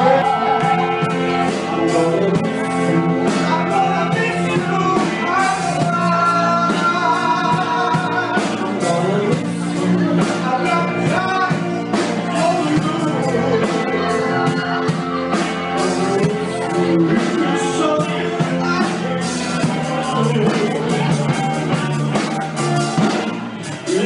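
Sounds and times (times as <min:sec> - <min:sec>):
person singing: 0:00.0 - 0:24.0
soul band playing live: 0:00.0 - 0:24.0.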